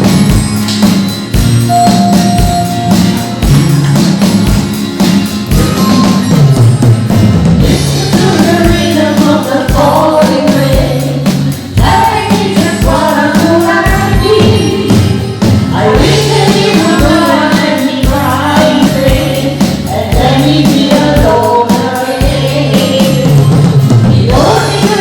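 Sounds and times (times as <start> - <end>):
drum beat and bass: 0.0 - 25.0
song with singing: 7.6 - 25.0.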